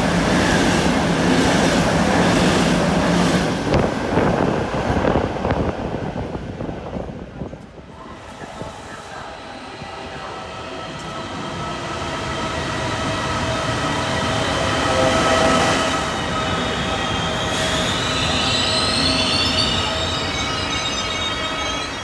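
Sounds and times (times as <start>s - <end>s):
train running on rails: 0.0s - 22.0s
train wheels squealing: 11.1s - 22.0s.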